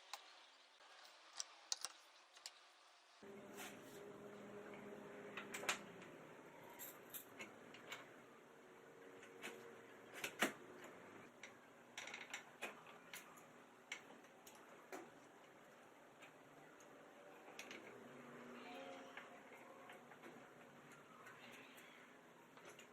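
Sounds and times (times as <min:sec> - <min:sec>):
small hard objects clicking: 0:01.0 - 0:02.6.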